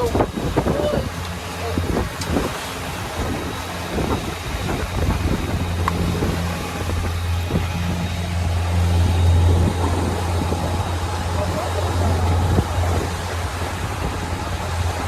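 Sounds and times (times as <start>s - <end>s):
boat engine humming: 0.0s - 15.0s
water noise: 0.0s - 15.0s
wind: 0.0s - 15.0s.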